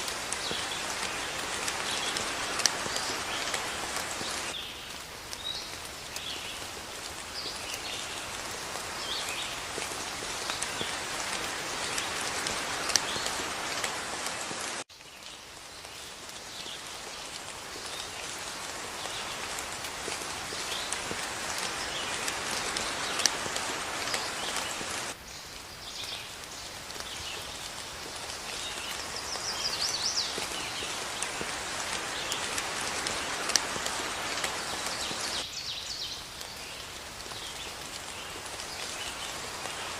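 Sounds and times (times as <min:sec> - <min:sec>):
steady rain: 0:00.0 - 0:39.9
birds chirping: 0:00.2 - 0:06.6, 0:28.1 - 0:39.9.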